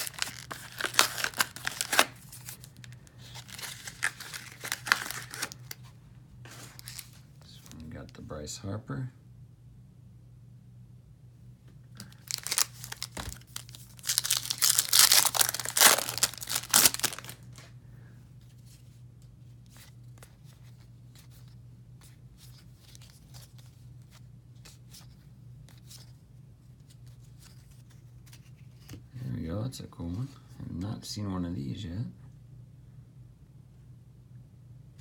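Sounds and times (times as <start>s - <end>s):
wrapper tearing and crinkling: 0.0s - 5.8s, 6.5s - 7.2s, 12.0s - 17.6s.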